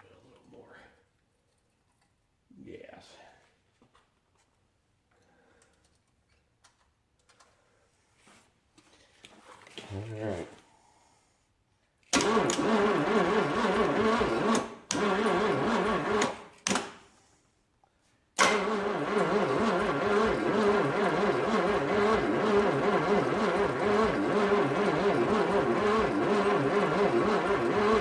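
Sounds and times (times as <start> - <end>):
car engine cranking on starter: 12.2 - 17.0, 18.4 - 28.0.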